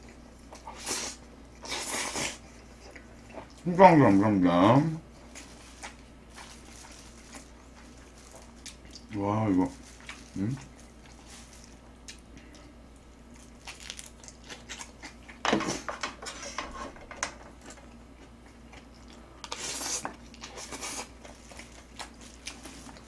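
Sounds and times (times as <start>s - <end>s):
person biting and chewing food: 9.8s - 15.4s, 18.3s - 23.0s.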